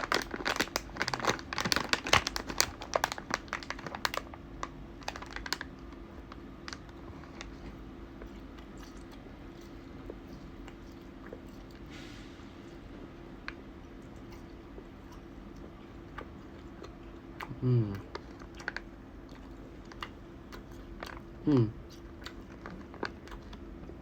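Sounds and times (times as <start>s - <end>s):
plastic snack packet crinkling: 0.0s - 7.7s, 18.1s - 20.1s, 22.2s - 23.6s.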